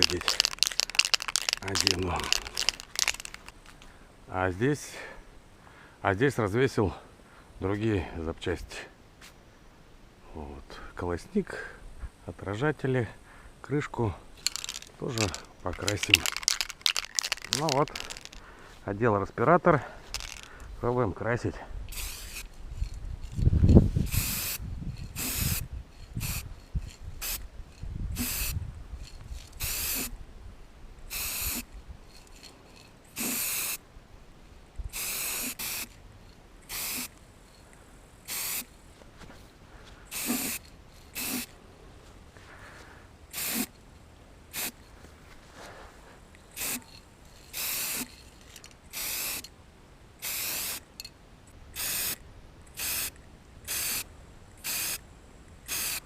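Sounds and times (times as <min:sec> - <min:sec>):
aerosol can spraying bursts: 0:21.9 - 0:22.5, 0:24.1 - 0:24.6, 0:25.2 - 0:25.6, 0:28.2 - 0:28.6, 0:29.6 - 0:30.1, 0:31.1 - 0:31.7, 0:33.1 - 0:33.8, 0:34.9 - 0:35.9, 0:36.7 - 0:37.1, 0:38.3 - 0:38.7, 0:40.1 - 0:41.5, 0:43.3 - 0:43.7, 0:44.5 - 0:44.8, 0:46.6 - 0:46.9, 0:47.5 - 0:48.2, 0:48.9 - 0:49.5, 0:50.2 - 0:50.8, 0:51.8 - 0:54.0, 0:54.6 - 0:55.0, 0:55.7 - 0:56.0.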